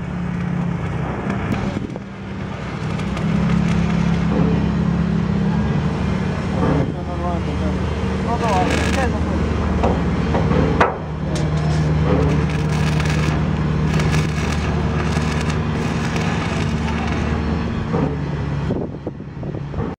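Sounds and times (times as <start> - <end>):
welding current hum: 0.0 - 6.5, 7.4 - 10.3, 11.2 - 18.7
welding arc crackling: 0.2 - 4.3, 8.2 - 9.4, 11.8 - 17.9.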